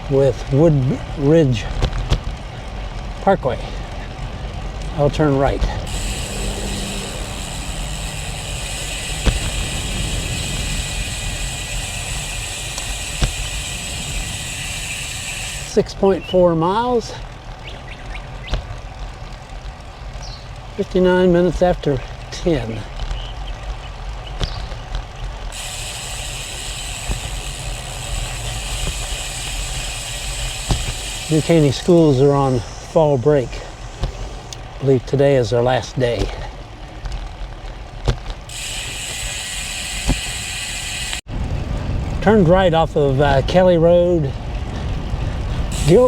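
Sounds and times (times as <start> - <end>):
bicycle freehub ratcheting whir: 0.0 - 46.0
wind and road noise: 0.0 - 46.0
wind rumble on microphone: 0.4 - 15.0, 41.3 - 46.0.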